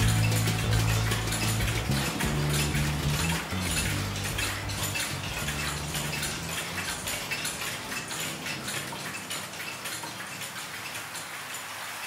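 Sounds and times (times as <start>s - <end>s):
low music notes: 0.0s - 7.6s
rain pattering: 0.0s - 12.0s.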